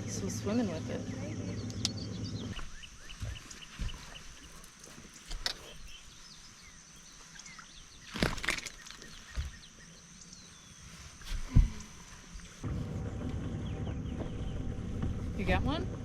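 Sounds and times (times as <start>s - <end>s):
small birds chirping: 0.0s - 16.0s
soft thuds: 11.2s - 12.0s.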